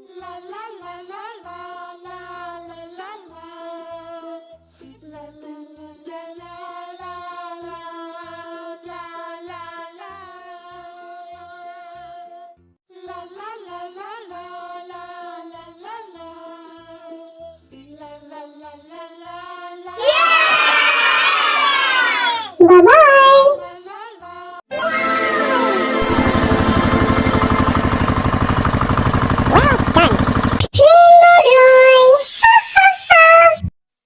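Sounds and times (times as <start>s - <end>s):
loud sound of pitches sliding downward: 24.7s - 28.8s
wordless high hummed melody: 24.7s - 30.6s.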